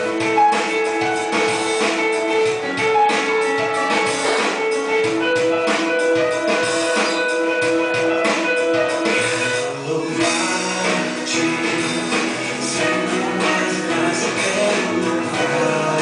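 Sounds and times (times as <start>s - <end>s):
drums: 0.0s - 16.0s
guitar: 0.0s - 16.0s.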